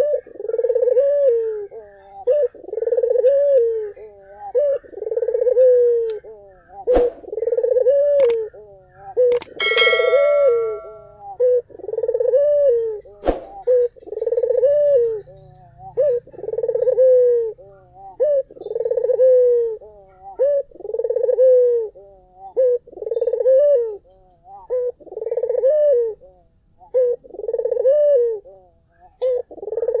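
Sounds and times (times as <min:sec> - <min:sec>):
dove cooing: 0:00.0 - 0:30.0
sharp click: 0:08.2 - 0:08.4, 0:09.3 - 0:11.0.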